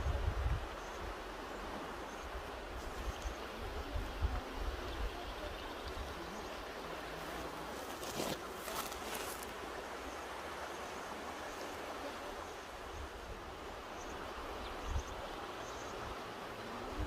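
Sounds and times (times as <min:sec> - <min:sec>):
mountain river rushing: 0:00.0 - 0:17.0.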